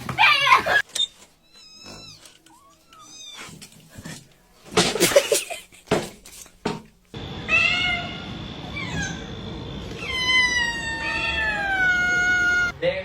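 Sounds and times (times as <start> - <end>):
cat meowing: 7.4 - 9.3, 9.9 - 12.7.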